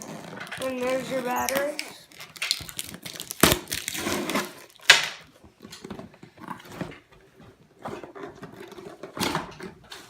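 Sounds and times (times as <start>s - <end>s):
packaging rustling: 0.0s - 4.9s.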